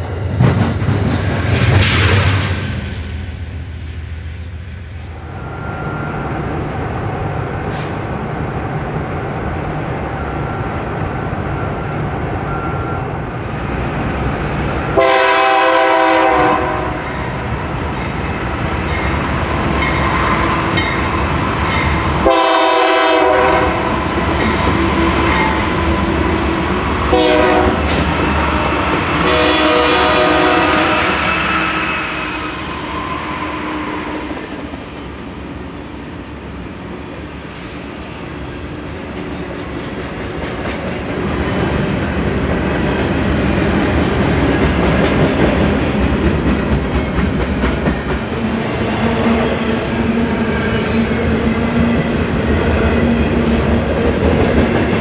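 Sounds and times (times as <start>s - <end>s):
train wheels rumbling on rail: 0.0s - 55.0s
train air horn blasts: 15.0s - 17.2s, 22.2s - 24.0s, 27.1s - 34.3s.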